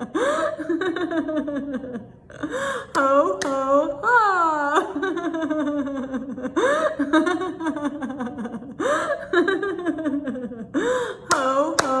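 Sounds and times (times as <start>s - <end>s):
woman laughing: 0.0s - 12.0s.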